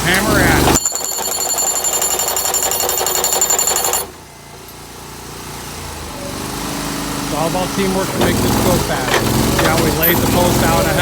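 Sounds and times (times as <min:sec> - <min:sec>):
engine running: 0:00.0 - 0:01.2, 0:02.0 - 0:11.0
post driver hammering: 0:00.0 - 0:04.2, 0:08.1 - 0:11.0.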